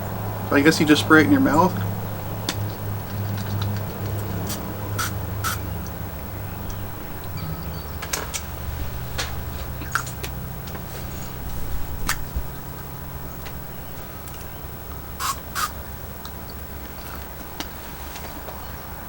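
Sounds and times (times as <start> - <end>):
steady low hum: 0.0 - 19.0
pump-spray bottle clicks: 3.4 - 5.6, 15.2 - 15.7.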